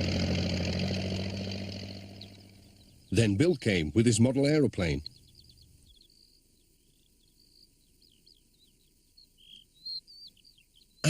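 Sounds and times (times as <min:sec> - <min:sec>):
faint birdsong chirps and whistles: 0:00.0 - 0:11.0.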